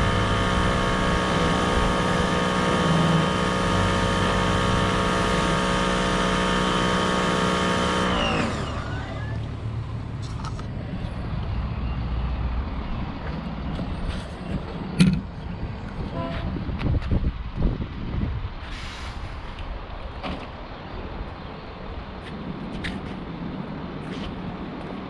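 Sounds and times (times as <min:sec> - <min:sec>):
pressure washer motor whining: 0:00.0 - 0:10.1.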